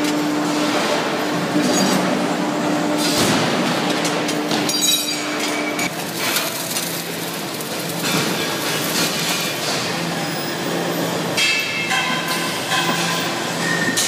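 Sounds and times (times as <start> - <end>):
automatic torch welding: 5.4 - 11.6.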